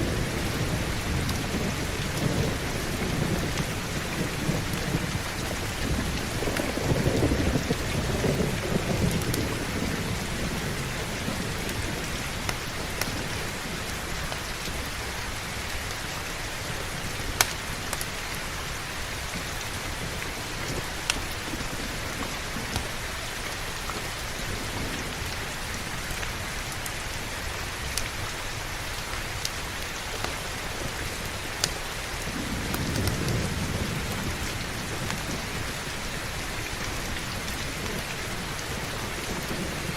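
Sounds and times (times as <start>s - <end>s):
low thunder rolls: 0.0s - 14.1s, 30.6s - 39.9s
heavy rain: 0.0s - 39.9s.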